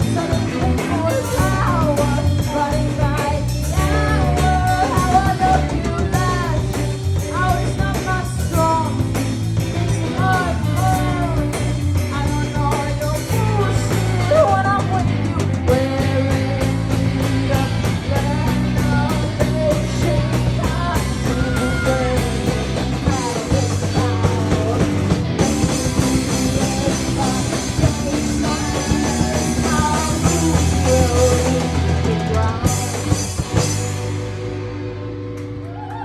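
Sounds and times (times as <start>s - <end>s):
person singing: 0.0s - 33.8s
drum kit: 0.0s - 36.0s
live rock band playing: 0.0s - 36.0s.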